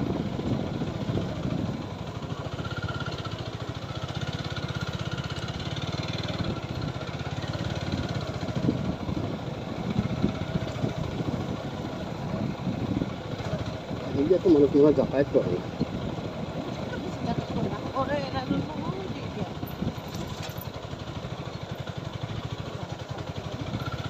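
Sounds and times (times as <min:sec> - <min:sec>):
motorcycle engine putter: 0:19.6 - 0:22.5.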